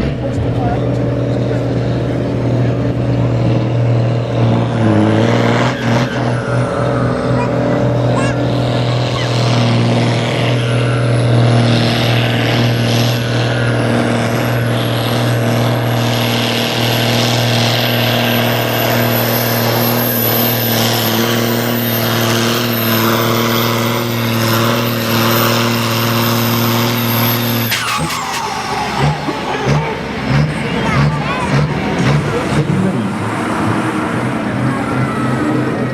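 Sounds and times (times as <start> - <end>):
tractor diesel engine running hard: 0.0 - 35.9.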